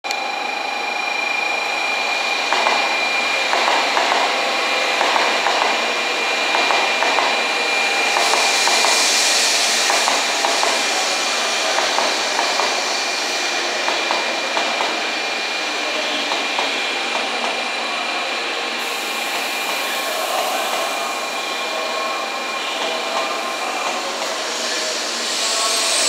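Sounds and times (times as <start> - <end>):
high steady whine: 0.1 - 26.0
train rolling noise: 0.1 - 26.0
hiss: 8.0 - 15.0, 23.3 - 26.0.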